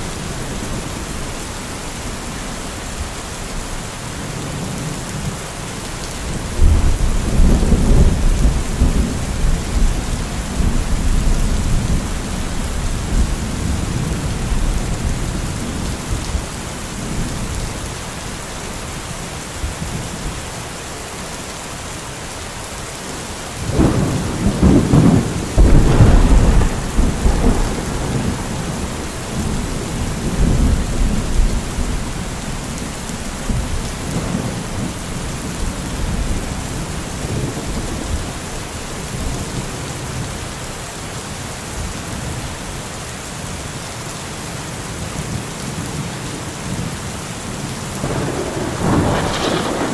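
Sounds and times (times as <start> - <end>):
rain falling: 0.0 - 49.9
rolling thunder: 6.4 - 16.4, 23.7 - 38.5, 48.0 - 49.9.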